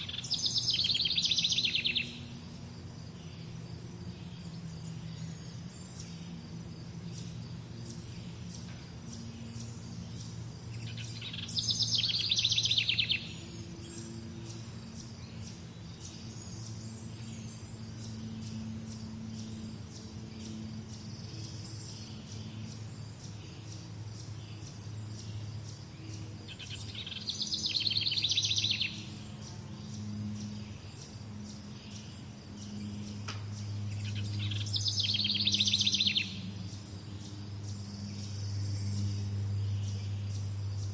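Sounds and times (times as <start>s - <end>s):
songbird trilling: 0.0s - 3.5s, 7.1s - 40.9s
low hum: 24.7s - 40.9s.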